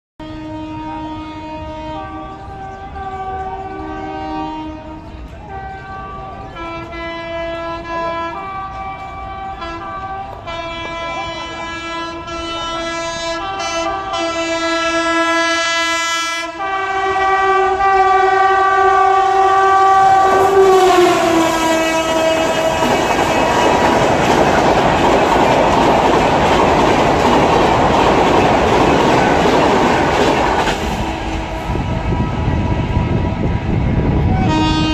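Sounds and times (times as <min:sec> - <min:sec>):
locomotive horn blasts: 0:00.2 - 0:24.3, 0:34.1 - 0:34.9
train coaches rushing past: 0:00.4 - 0:34.9.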